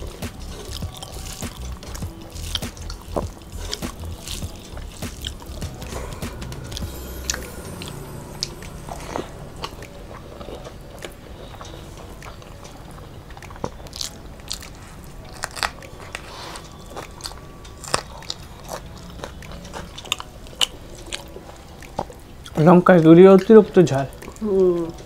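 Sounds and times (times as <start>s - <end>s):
chewing and smacking mouth noises: 0.0s - 5.7s, 11.6s - 23.1s.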